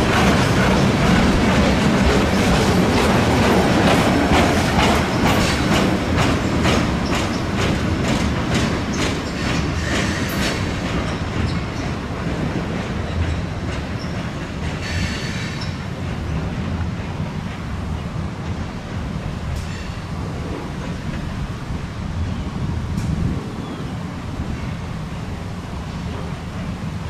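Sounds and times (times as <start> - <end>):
wheels clicking over rail joints: 0.0 - 21.4
train low rumble: 0.0 - 27.0.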